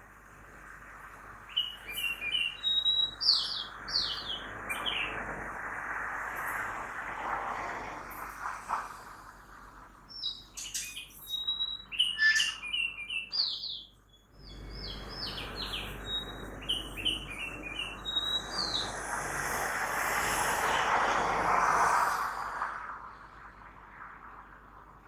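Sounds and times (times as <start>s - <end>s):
distant road traffic hum: 0.0s - 25.0s
songbird chirping and whistling: 1.5s - 5.1s, 10.1s - 19.0s.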